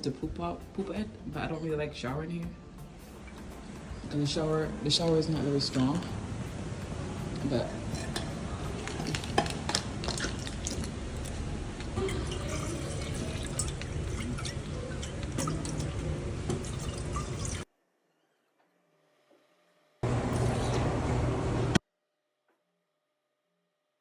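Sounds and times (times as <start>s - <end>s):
running water splashing drips: 3.0s - 17.6s.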